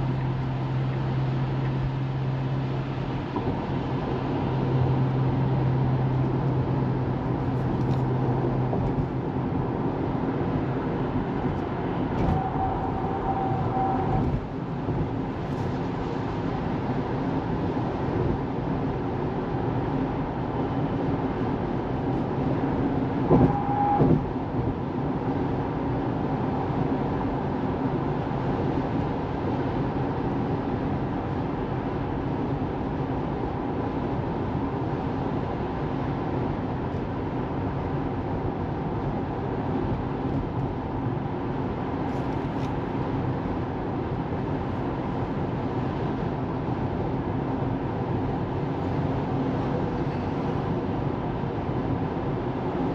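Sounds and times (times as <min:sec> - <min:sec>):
car road and tyre noise: 0:00.0 - 0:52.9
brief tone: 0:12.2 - 0:14.4, 0:23.3 - 0:24.2.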